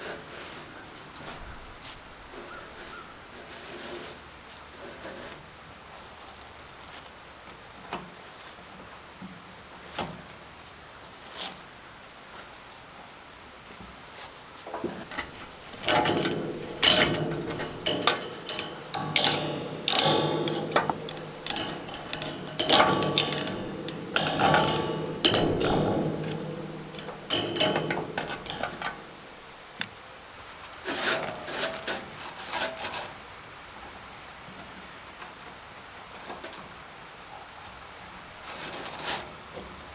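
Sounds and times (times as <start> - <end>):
tools knocking and scraping on metal: 14.7 - 29.9.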